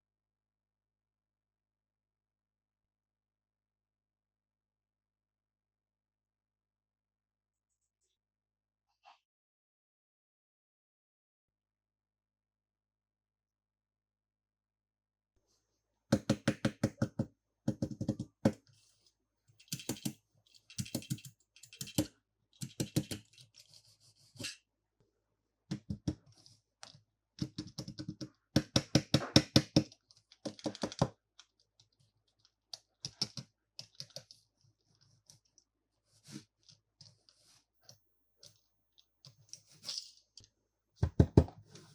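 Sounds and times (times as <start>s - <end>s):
plastic toys clicking and clattering: 19.6s - 23.7s, 29.8s - 31.5s.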